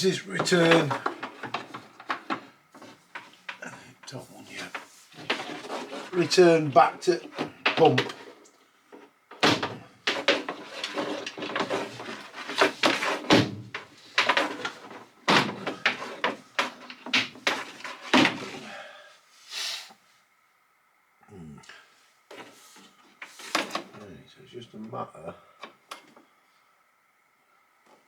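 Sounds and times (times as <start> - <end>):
sharp knocks and clatters: 0.0 - 18.6
scraping and rattling: 0.0 - 18.8
short hiss: 19.4 - 20.0.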